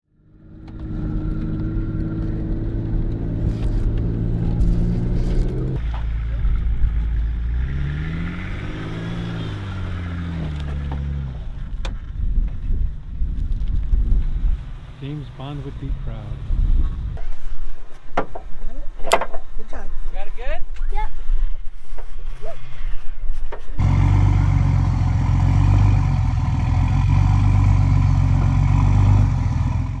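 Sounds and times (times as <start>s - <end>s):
vehicle engine running loudly: 0.1s - 12.0s, 23.8s - 30.0s
truck engine running: 23.8s - 30.0s.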